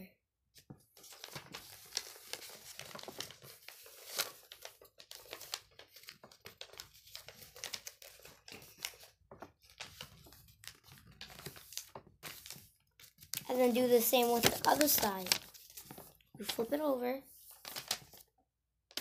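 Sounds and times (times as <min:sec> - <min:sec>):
paper crinkling and rustling: 0:00.6 - 0:16.8, 0:17.4 - 0:18.3.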